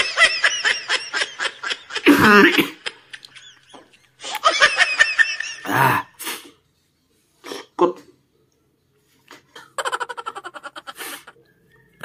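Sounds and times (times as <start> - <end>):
person giggling: 2.0 - 4.5, 9.6 - 11.4.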